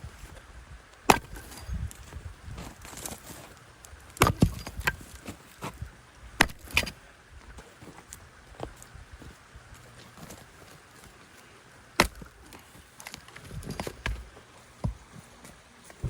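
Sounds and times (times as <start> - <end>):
axe splitting wood: 1.1 - 1.9, 4.1 - 5.8, 6.4 - 7.0, 12.0 - 15.0.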